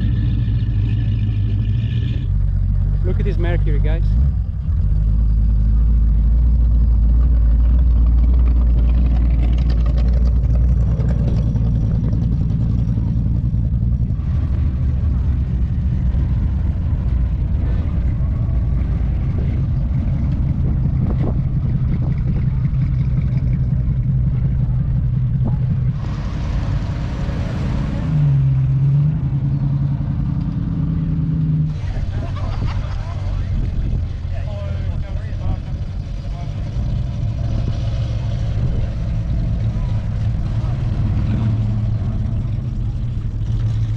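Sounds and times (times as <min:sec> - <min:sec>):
car engines rumbling past: 0:00.0 - 0:43.9.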